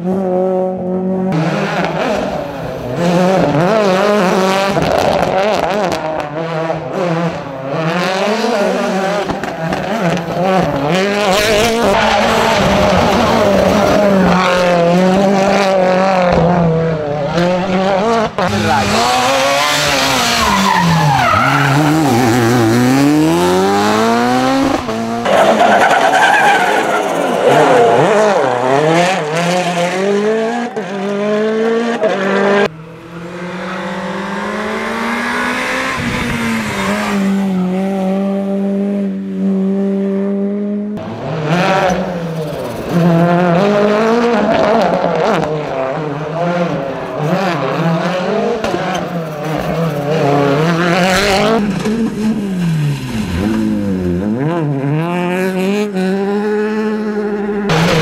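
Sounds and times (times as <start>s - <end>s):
rally car engines revving: 0.0s - 58.0s
tyre squeal: 18.6s - 22.5s, 25.2s - 28.0s.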